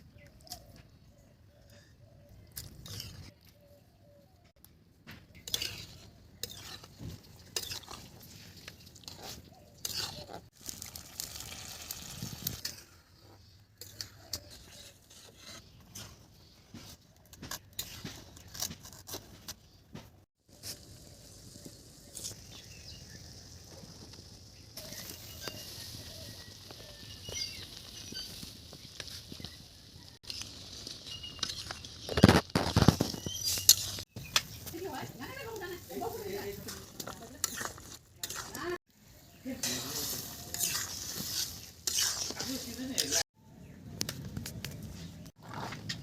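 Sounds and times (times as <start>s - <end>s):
metal utensil scraping a pot: 2.8s - 3.4s, 5.4s - 10.5s, 12.2s - 19.2s, 30.2s - 34.0s, 35.5s - 43.2s.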